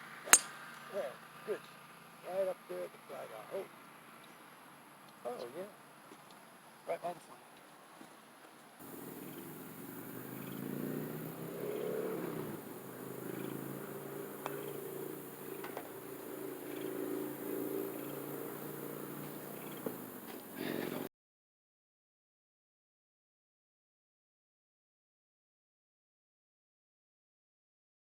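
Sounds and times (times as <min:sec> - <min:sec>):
small engine running: 0:08.8 - 0:21.1
faint clicks: 0:14.4 - 0:14.8.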